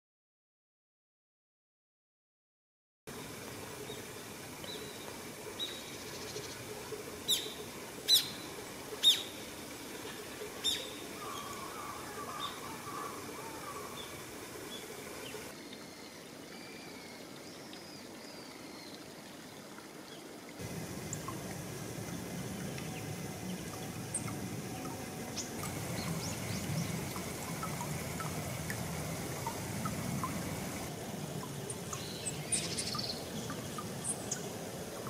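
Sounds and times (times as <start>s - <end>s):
faint background hiss: 3.1s - 35.0s
soft bird twittering: 22.6s - 28.4s.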